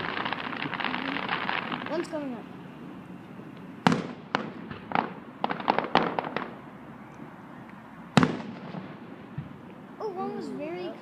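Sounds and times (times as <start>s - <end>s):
fireworks popping and crackling: 0.0s - 2.5s, 3.6s - 6.6s, 8.2s - 9.8s
fireworks bangs: 0.0s - 7.3s, 8.1s - 9.8s.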